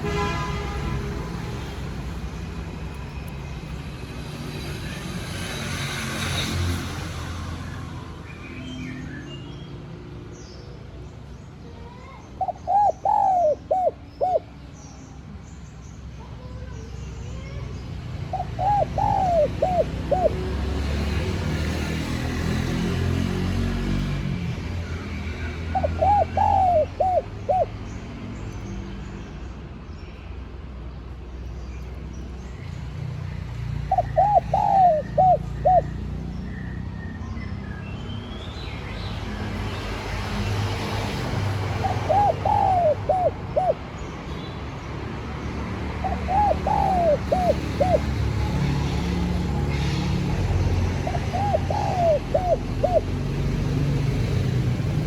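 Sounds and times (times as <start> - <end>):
dove cooing: 12.4 - 14.6, 18.3 - 20.8, 25.7 - 27.7, 33.9 - 36.1, 41.5 - 43.9, 46.0 - 49.8, 50.6 - 53.7.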